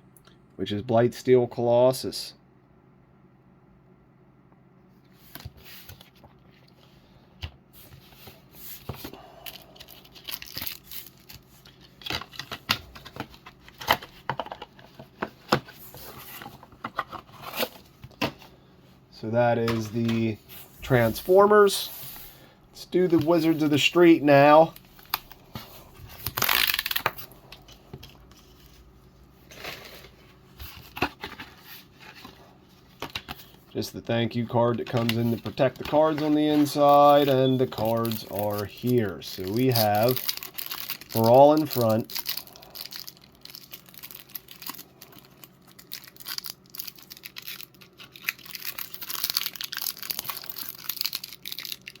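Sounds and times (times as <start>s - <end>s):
packaging crinkling and rustling: 7.8s - 18.6s, 23.0s - 52.0s.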